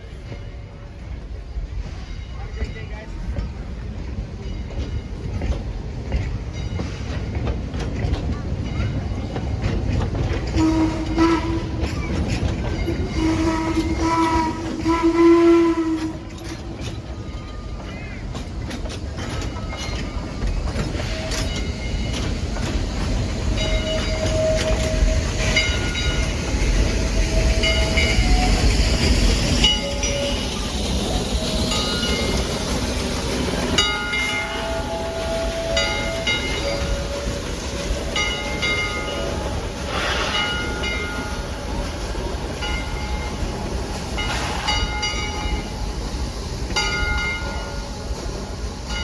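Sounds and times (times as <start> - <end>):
train clanking: 0.0 - 49.0
train rumble: 0.0 - 49.0
locomotive whistle blasts: 10.6 - 11.9, 13.0 - 16.6, 23.8 - 25.6, 34.2 - 37.8
high wheel squeals: 19.7 - 33.1.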